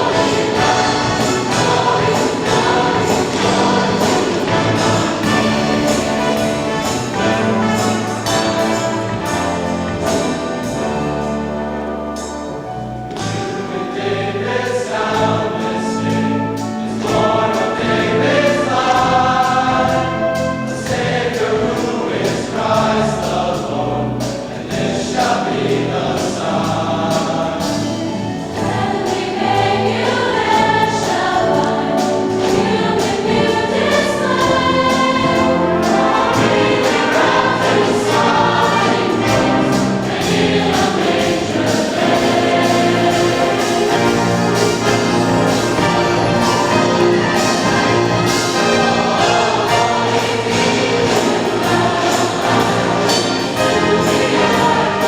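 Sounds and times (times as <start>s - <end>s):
accompanying instruments: 0.0s - 55.0s
choir singing: 0.0s - 55.0s.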